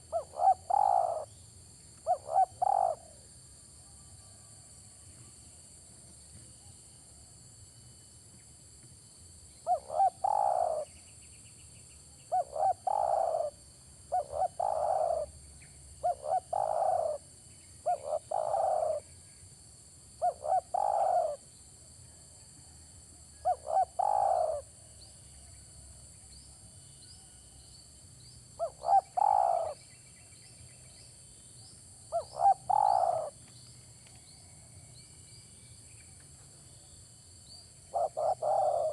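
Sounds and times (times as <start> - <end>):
dove cooing: 0.0 - 1.3, 2.0 - 3.2, 9.7 - 10.9, 12.3 - 15.3, 16.0 - 17.2, 17.8 - 19.0, 20.2 - 21.4, 23.4 - 24.7, 28.6 - 29.8, 32.1 - 33.4, 37.9 - 38.9.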